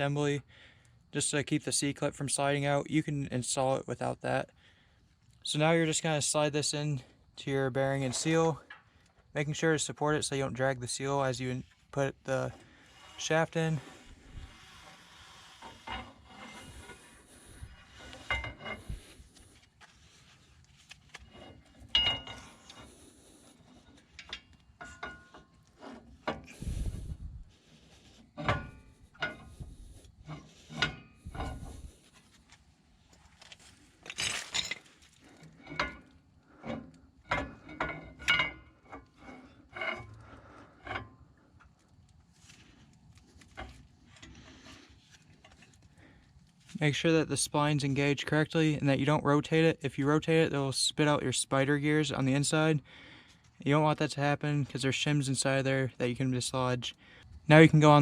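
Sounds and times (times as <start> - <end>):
metal scraping and knocking: 7.9 - 8.9, 11.6 - 32.2, 34.0 - 41.3.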